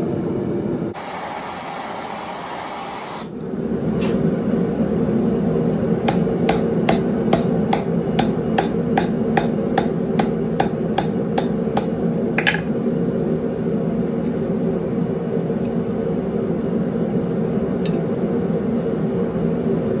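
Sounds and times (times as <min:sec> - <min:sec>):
hammer striking steel on anvil: 0:06.1 - 0:12.7.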